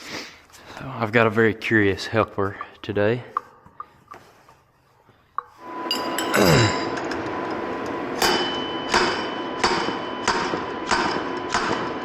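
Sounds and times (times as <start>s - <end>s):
steady mechanical noise: 5.4s - 12.0s
hammer striking metal: 5.6s - 12.0s.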